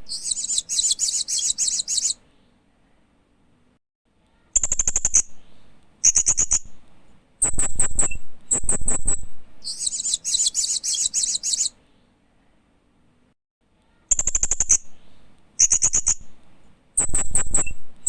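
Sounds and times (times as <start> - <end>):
parrot chirping: 0.0 - 2.2, 9.6 - 11.7.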